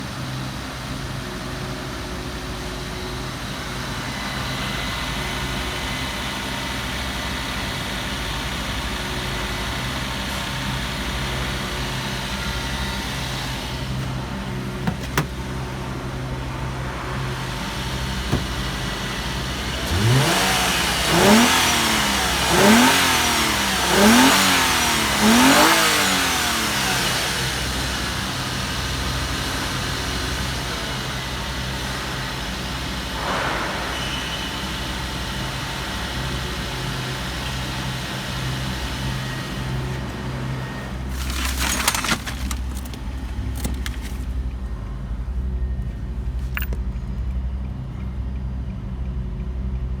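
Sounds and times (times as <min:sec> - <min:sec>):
car engine revving and idling: 0:00.0 - 0:50.0
brief noisy burst: 0:33.1 - 0:35.8.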